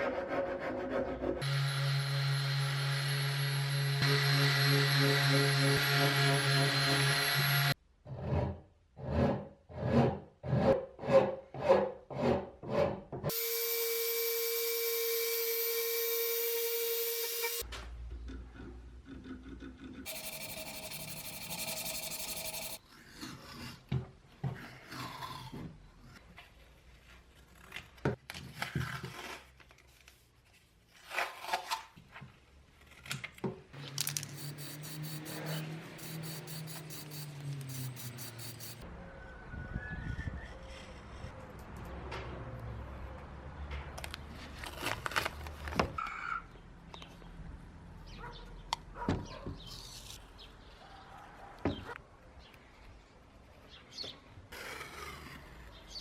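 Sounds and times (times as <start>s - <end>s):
fast regular ticking: 20.1s - 22.8s, 34.4s - 38.8s
hand tool strokes on wood: 20.1s - 22.8s, 34.2s - 38.8s
machine tone with hiss: 20.1s - 22.8s, 34.2s - 38.8s.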